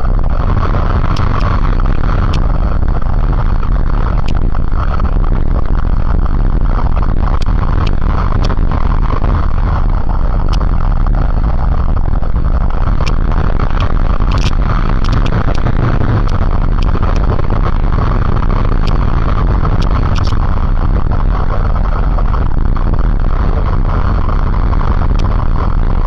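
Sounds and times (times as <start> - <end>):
motorcycle engine drone: 0.0 - 26.0
wind buffeting microphone: 0.0 - 26.0
faint sharp clicks: 10.4 - 10.7, 12.9 - 17.8, 18.5 - 20.4.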